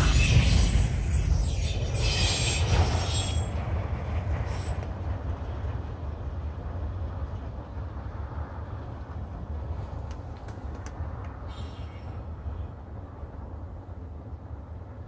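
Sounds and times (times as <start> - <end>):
high wheel squeal: 0.0 - 3.6
train cars rumbling on rails: 0.0 - 15.0.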